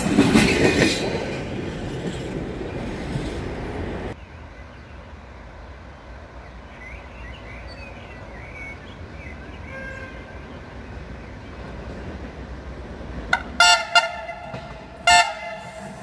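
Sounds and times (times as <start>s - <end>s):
approaching train rumble: 0.0s - 16.0s
birds chirping: 6.3s - 16.0s.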